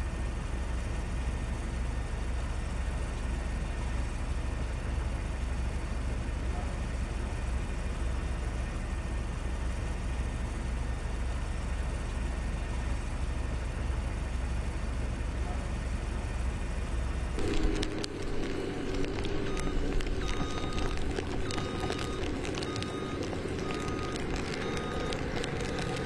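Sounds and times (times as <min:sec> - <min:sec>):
low outdoor rumble: 0:00.0 - 0:26.0
sharp clicks: 0:17.4 - 0:26.0.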